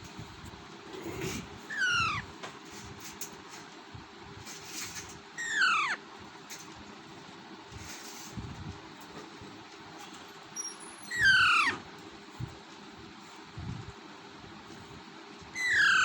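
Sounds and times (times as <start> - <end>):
parakeet calls falling in pitch: 1.7 - 2.2, 5.4 - 6.0, 15.6 - 16.0.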